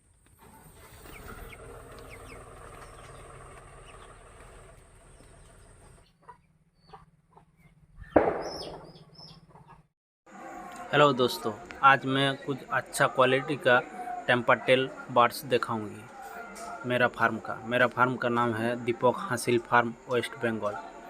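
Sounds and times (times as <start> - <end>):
chickens clucking and calling: 0.4 - 9.8.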